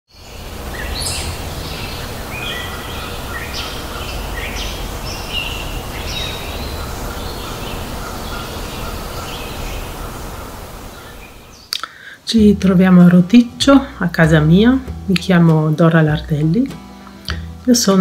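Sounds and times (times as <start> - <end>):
small birds chirping: 0.1 - 12.1
low outdoor rumble: 12.3 - 18.0.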